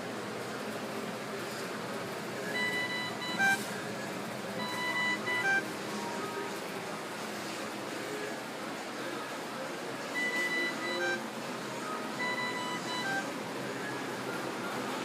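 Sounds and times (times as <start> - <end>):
two-note electronic beeps: 2.6 - 3.6, 4.6 - 5.6, 10.2 - 11.2, 12.2 - 13.2.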